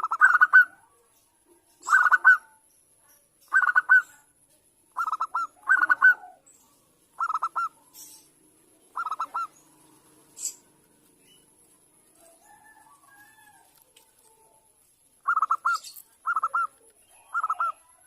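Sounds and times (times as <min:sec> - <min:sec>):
dove cooing: 0:00.0 - 0:01.0, 0:01.8 - 0:02.6, 0:03.5 - 0:04.2, 0:04.9 - 0:06.5, 0:07.1 - 0:10.9, 0:12.2 - 0:18.0.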